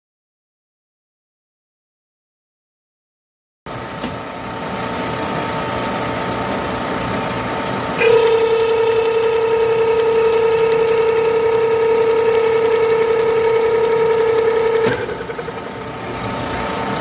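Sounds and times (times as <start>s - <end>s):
machine tool cutting metal: 7.8s - 16.4s.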